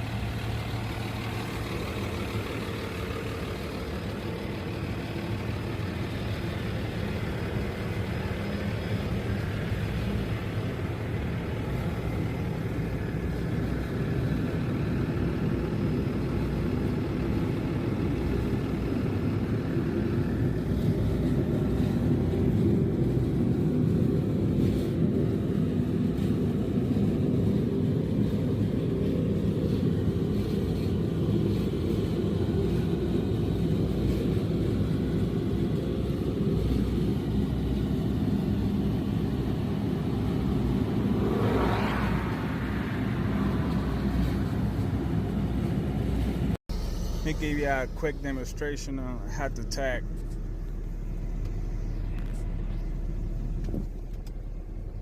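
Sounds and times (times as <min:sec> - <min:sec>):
truck engine rumbling: 0:00.0 - 0:55.0.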